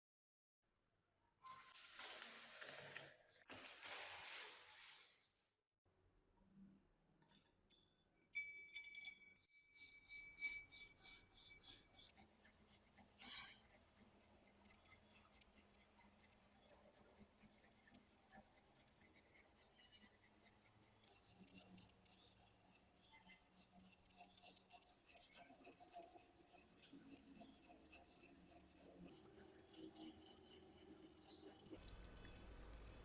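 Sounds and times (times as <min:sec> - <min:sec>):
rapid hand scraping: 0:09.5 - 0:16.2.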